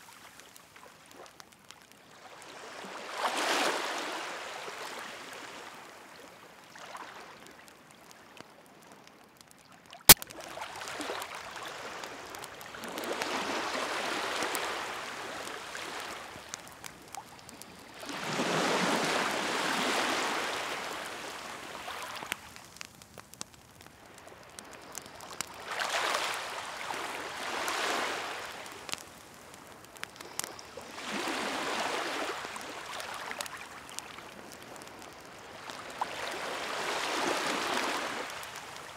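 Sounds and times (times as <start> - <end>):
wood fire crackling: 0.0 - 38.9
waves washing in: 10.4 - 16.5, 18.0 - 22.3, 30.9 - 33.4, 35.5 - 38.8.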